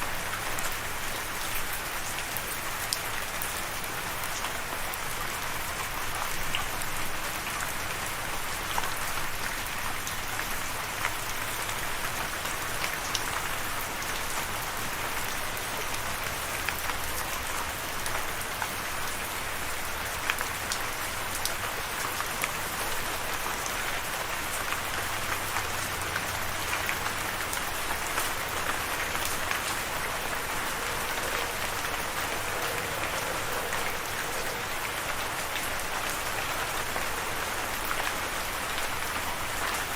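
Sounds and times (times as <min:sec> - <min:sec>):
rain hissing: 0:12.5 - 0:39.9.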